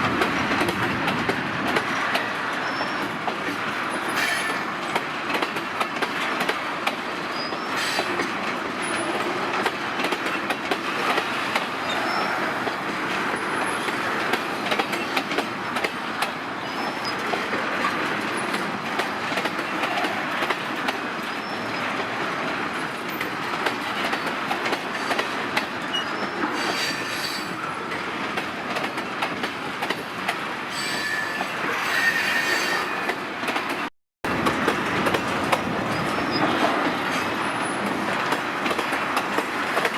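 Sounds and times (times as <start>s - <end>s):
train wheels clattering: 0.0s - 39.9s
train wheels squealing: 2.6s - 3.2s, 4.0s - 4.8s, 7.2s - 9.2s, 11.3s - 12.8s, 16.6s - 17.3s, 21.3s - 21.9s, 25.8s - 28.1s, 30.7s - 33.2s, 35.9s - 36.6s.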